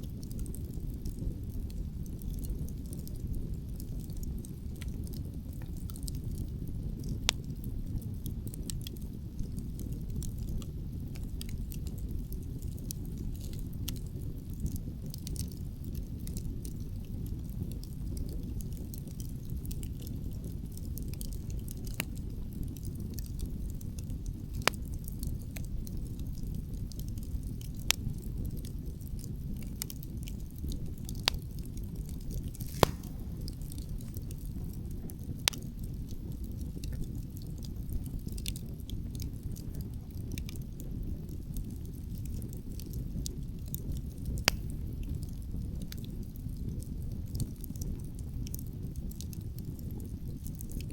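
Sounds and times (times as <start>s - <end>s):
wood fire crackling: 0.0s - 50.9s
low wind rumble: 29.4s - 37.2s
sharp fire pops: 29.6s - 38.6s, 44.2s - 45.2s.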